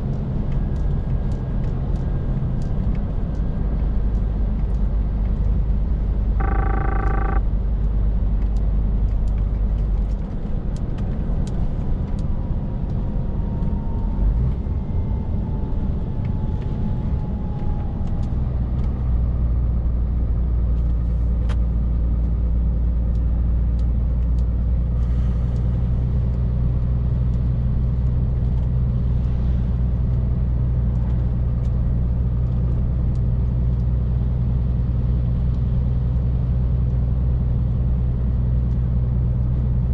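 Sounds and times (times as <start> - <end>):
road noise: 0.0 - 39.9
lorry diesel engine running: 0.1 - 10.1
short beep: 6.4 - 7.4.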